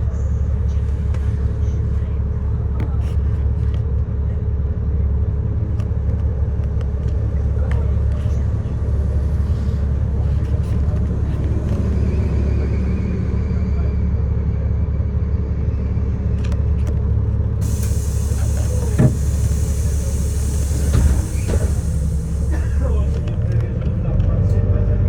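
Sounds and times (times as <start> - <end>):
bus engine and road drone: 0.0 - 25.0
steady hiss: 17.6 - 22.6.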